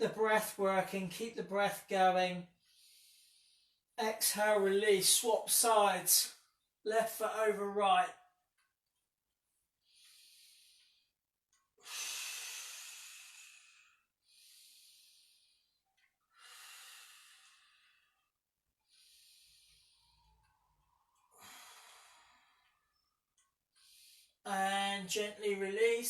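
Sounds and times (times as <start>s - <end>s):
person breathing deeply: 2.6s - 3.8s, 9.8s - 11.1s, 11.8s - 23.2s.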